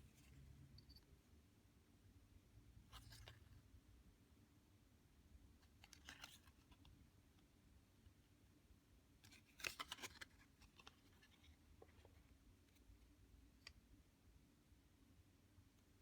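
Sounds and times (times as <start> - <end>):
paper cards rustling and clicking: 5.6 - 6.9, 9.2 - 12.2.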